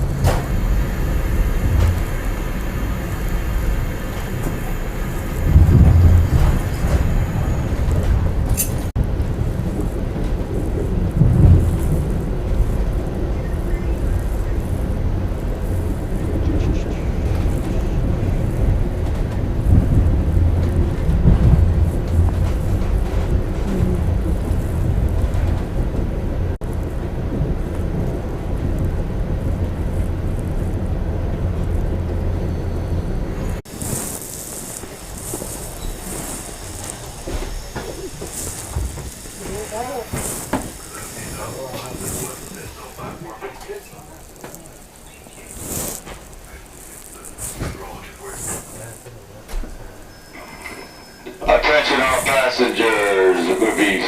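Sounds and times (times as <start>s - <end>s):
train rumbling: 0.0s - 54.0s
brief high hiss: 33.7s - 44.2s.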